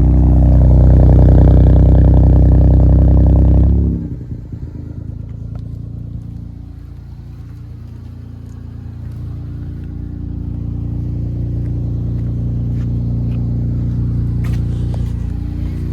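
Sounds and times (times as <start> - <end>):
vehicle engine running: 0.0 - 15.9.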